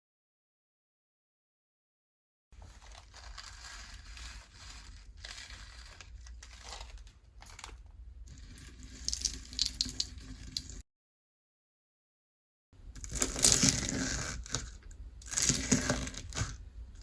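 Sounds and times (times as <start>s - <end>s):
slime crackling and crinkling: 2.6s - 10.8s, 12.9s - 16.7s.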